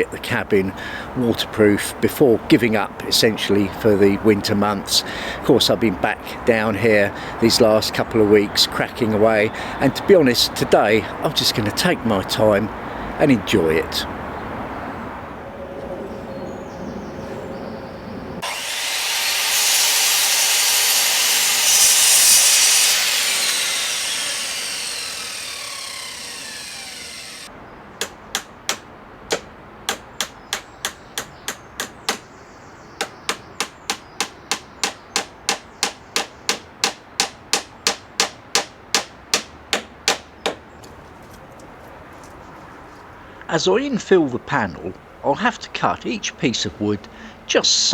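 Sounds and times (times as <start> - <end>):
power saw cutting wood: 18.4 - 27.5.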